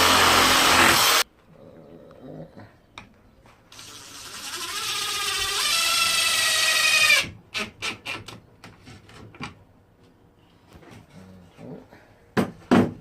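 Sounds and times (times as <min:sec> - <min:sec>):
power drill driving screw: 0:00.0 - 0:01.2.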